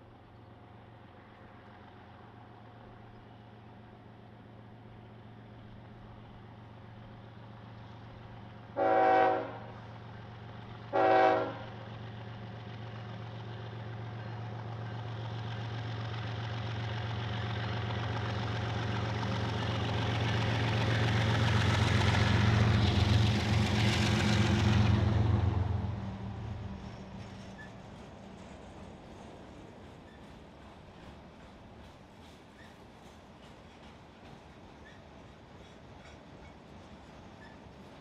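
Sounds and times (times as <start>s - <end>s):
locomotive horn blasts: 8.8s - 9.8s, 10.9s - 11.7s.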